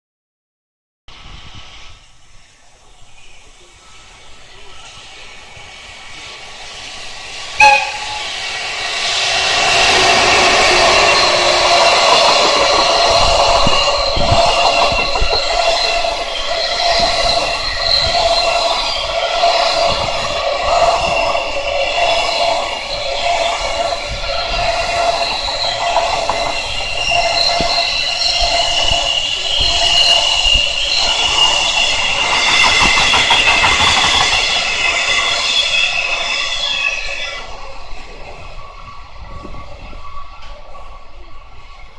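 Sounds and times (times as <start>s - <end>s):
train wheels on rails: 1.1s - 41.9s
high-pitched whine: 2.4s - 41.9s
high ringing tones: 7.6s - 8.7s
wheels clattering over rails: 9.2s - 17.5s, 30.5s - 35.6s.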